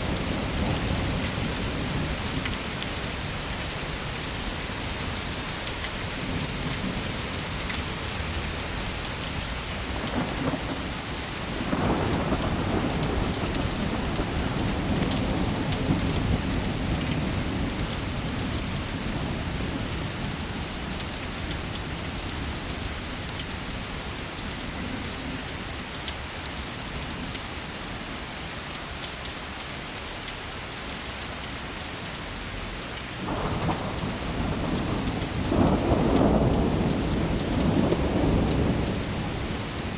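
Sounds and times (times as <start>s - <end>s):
heavy rain hissing: 0.0s - 25.7s, 32.6s - 39.9s
low thunder rumble: 6.2s - 23.0s, 33.2s - 39.9s.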